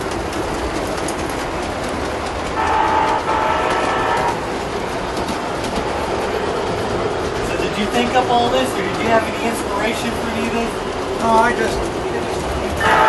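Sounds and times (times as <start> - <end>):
model train rumble and clatter: 0.0 - 13.0
train horn blasts: 2.6 - 4.5, 12.8 - 13.0.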